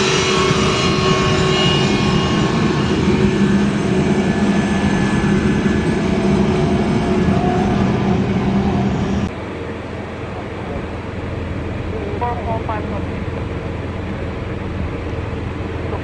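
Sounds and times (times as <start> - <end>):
jet engines at high power: 0.0 - 16.0.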